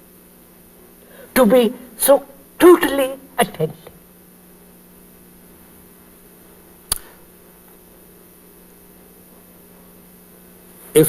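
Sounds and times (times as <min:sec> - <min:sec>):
low hum and faint hiss: 0:00.0 - 0:11.0
sharp click: 0:06.9 - 0:07.1.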